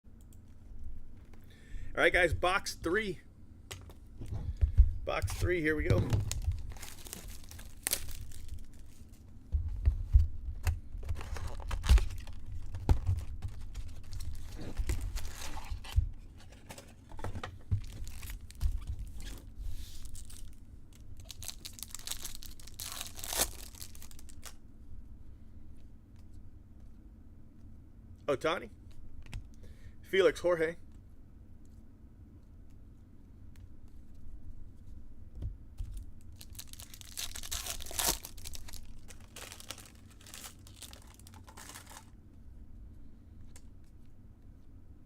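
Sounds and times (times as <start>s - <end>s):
packaging torn and crinkled: 6.2s - 9.1s, 11.0s - 16.0s, 17.8s - 19.4s, 21.2s - 24.6s, 35.9s - 42.2s.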